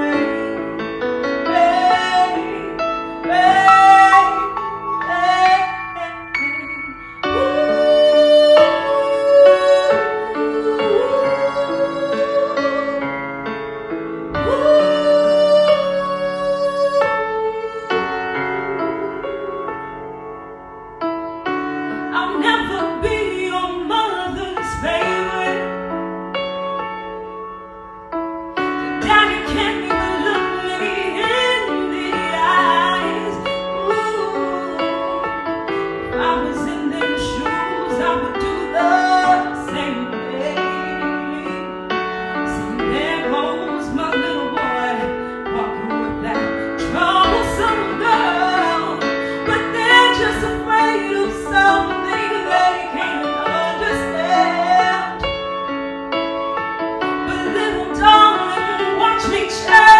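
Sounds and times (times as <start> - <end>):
person singing: 0.0 - 13.5, 28.6 - 55.4, 57.0 - 59.9
piano chords: 0.0 - 59.9.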